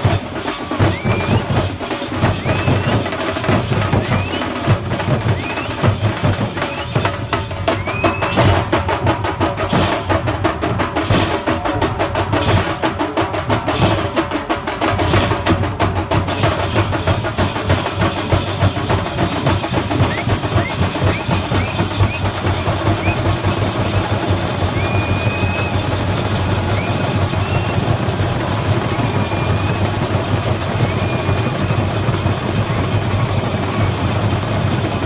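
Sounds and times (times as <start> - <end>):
fast drum roll: 0.0 - 35.0.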